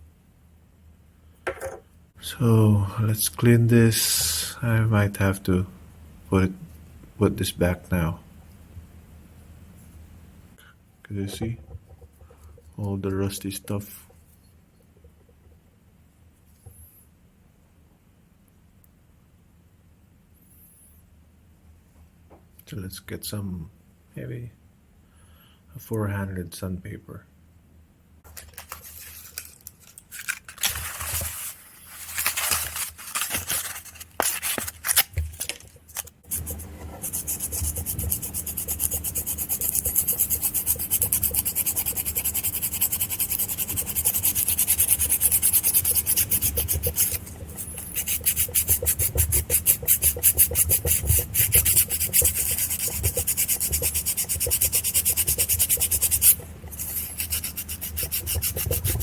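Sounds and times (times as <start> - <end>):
sandpaper rubbing on metal: 36.3 - 59.0.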